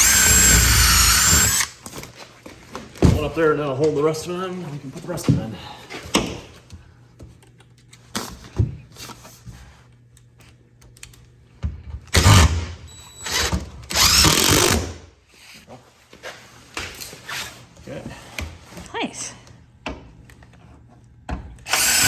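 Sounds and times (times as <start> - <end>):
drill driving screws into wood: 0.0 - 1.8, 12.1 - 15.0, 21.7 - 22.0.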